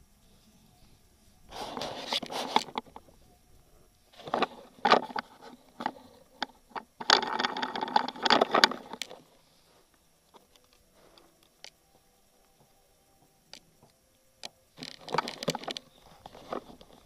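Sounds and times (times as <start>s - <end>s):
scraping and rustling: 1.5s - 3.3s, 4.1s - 11.4s, 14.8s - 17.0s.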